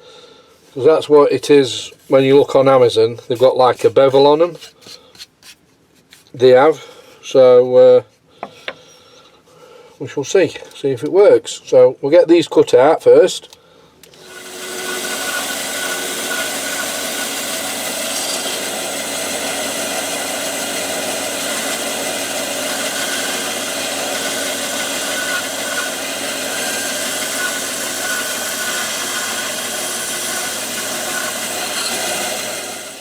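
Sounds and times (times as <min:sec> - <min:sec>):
power tool motor running: 0:14.2 - 0:33.0.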